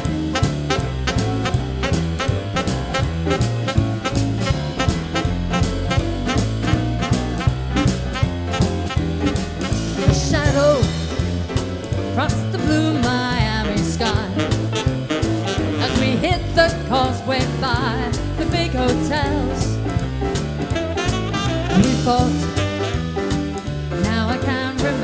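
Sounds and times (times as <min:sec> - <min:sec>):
jazz band playing swing: 0:00.0 - 0:25.0.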